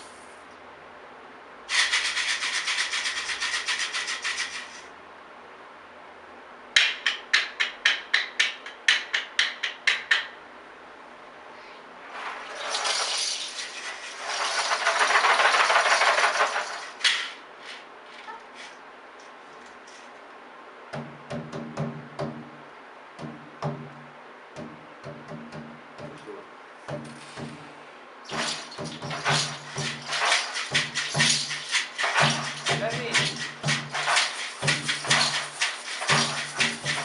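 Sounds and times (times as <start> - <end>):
tin-can shaker: 1.7 - 4.9, 12.1 - 18.8, 28.3 - 37.0
rasping scraping percussion: 28.3 - 37.0.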